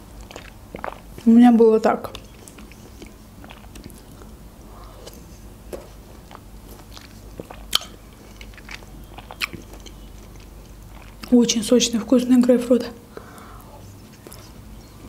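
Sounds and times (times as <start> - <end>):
mouth chewing food: 0.0 - 12.2, 13.0 - 15.0
soft wet mouth clicks: 7.4 - 9.9.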